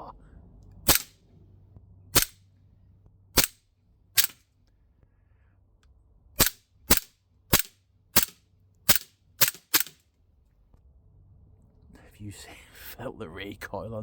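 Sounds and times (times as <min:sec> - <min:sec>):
air pistol shots: 0:00.9 - 0:01.1, 0:02.2 - 0:02.4, 0:03.4 - 0:03.6, 0:04.2 - 0:04.4, 0:06.4 - 0:10.0.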